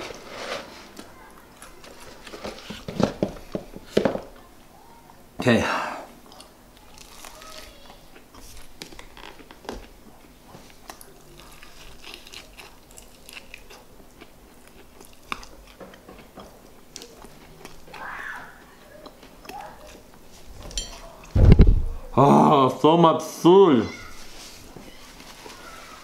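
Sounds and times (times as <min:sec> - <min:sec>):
person crunching fried chicken: 0:06.4 - 0:09.4, 0:10.8 - 0:15.8.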